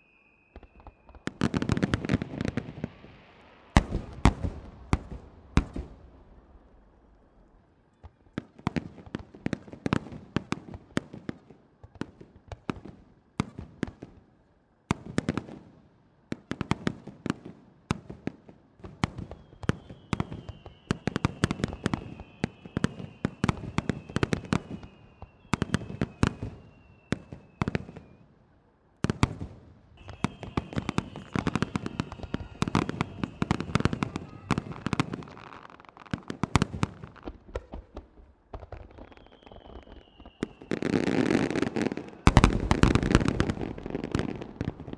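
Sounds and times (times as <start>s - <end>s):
firework whistles sliding down: 0.0s - 3.8s, 19.2s - 28.2s, 30.0s - 35.7s, 38.8s - 44.6s
fireworks bursting with loud bangs: 0.0s - 14.2s, 16.3s - 28.2s, 29.0s - 44.9s.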